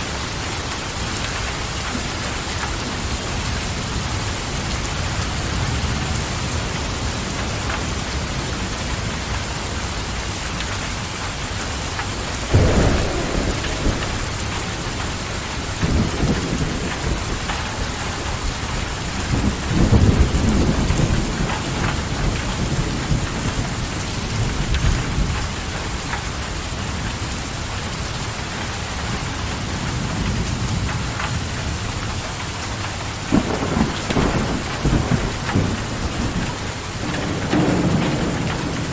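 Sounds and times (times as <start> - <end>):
steady rain falling: 0.0 - 38.9
low rolls of thunder: 12.5 - 26.2, 33.2 - 38.9.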